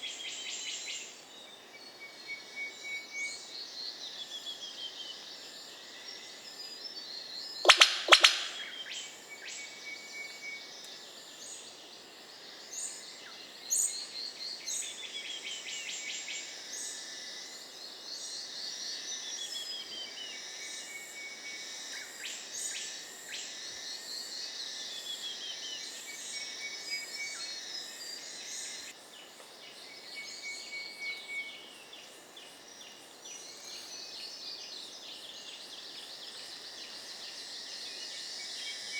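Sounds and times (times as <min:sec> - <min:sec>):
birds whistling and chirping: 0:07.7 - 0:08.7
loud sharp sounds: 0:07.7 - 0:08.7.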